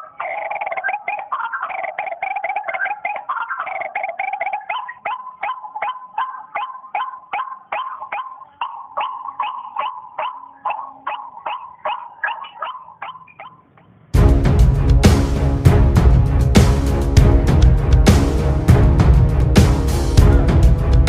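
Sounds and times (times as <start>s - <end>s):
waterhen calling harsh notes: 0.0s - 14.0s.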